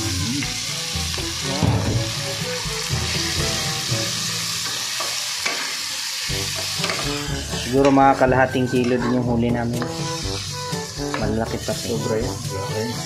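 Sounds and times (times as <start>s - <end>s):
food sizzling in a frying pan: 0.0s - 13.0s
spatula stirring in a pan: 3.1s - 7.7s, 9.7s - 13.0s.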